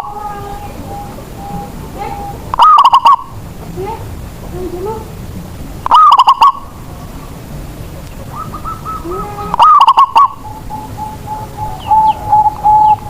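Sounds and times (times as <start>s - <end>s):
faint coos of another dove: 0.0s - 3.4s, 8.1s - 13.0s
dove cooing: 0.0s - 5.2s, 5.8s - 13.0s
small birds chirping: 0.0s - 13.0s.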